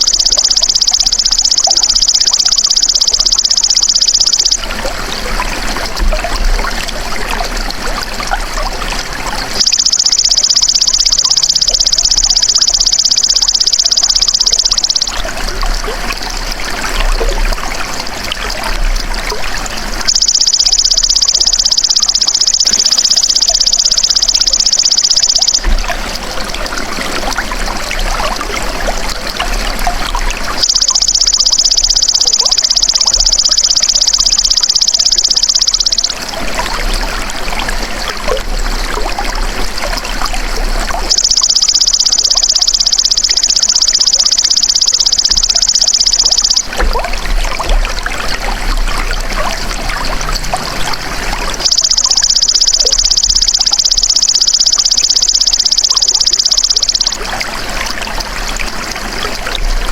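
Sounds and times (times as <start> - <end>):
water trickling and splashing: 0.0 - 59.9.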